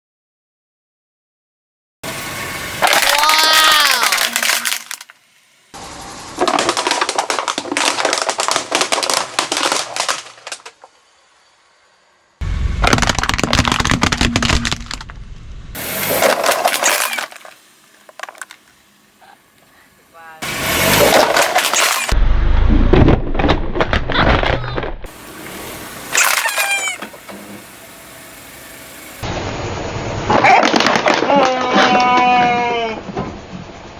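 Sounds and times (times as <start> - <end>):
tyres crushing crunching objects: 2.8 - 5.2, 6.4 - 10.9, 12.4 - 15.2, 15.8 - 19.4, 20.7 - 22.2, 22.8 - 27.6
falling squeals: 26.1 - 27.6, 31.2 - 33.1.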